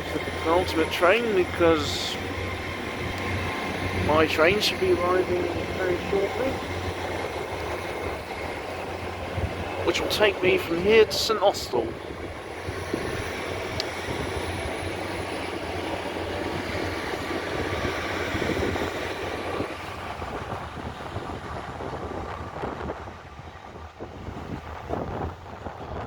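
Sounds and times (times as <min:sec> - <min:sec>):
train passing through station: 0:00.0 - 0:26.0.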